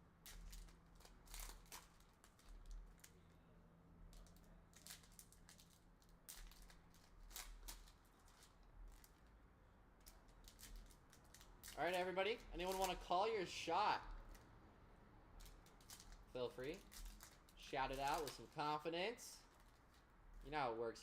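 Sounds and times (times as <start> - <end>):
foil packaging crinkling: 0.2 - 3.3, 4.1 - 9.4, 10.0 - 13.2, 15.4 - 20.5.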